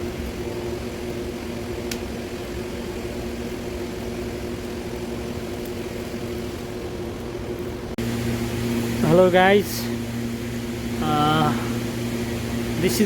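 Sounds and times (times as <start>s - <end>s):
rotisserie motor humming: 5.6s - 13.0s.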